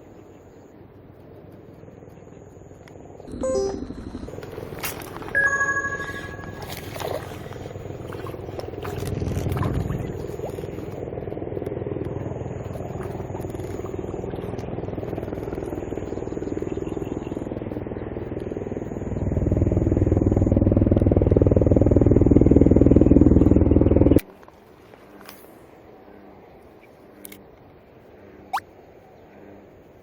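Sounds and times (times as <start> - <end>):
boat motor running: 3.0 - 24.3.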